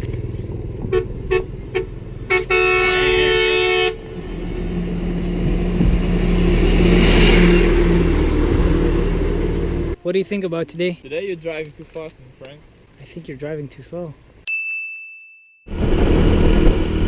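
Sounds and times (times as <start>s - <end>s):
vehicle horn honking: 0.9s - 4.0s
wind noise: 15.7s - 17.0s.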